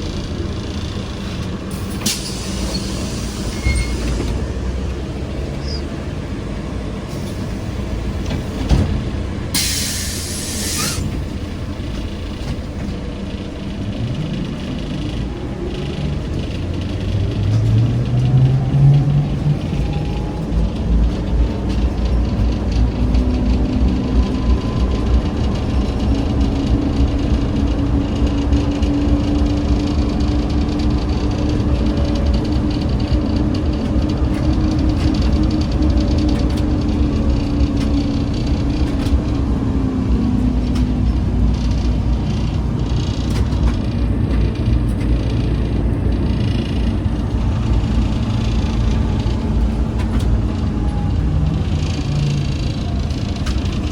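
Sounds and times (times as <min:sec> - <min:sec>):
traction motor whine: 0:00.0 - 0:27.7
trolleybus ride rumble: 0:00.0 - 0:53.9
rattles and clicks: 0:08.1 - 0:53.9.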